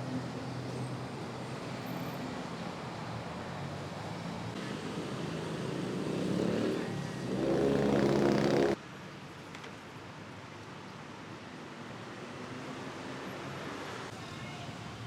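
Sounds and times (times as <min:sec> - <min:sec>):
street traffic: 0:00.0 - 0:15.0
motor vehicle engine: 0:05.6 - 0:08.8.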